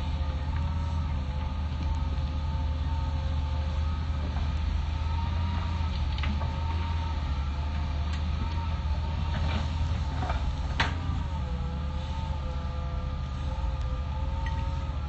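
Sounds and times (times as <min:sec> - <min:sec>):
excavator engine rumble: 0:00.0 - 0:15.0
whining tones: 0:03.6 - 0:15.0.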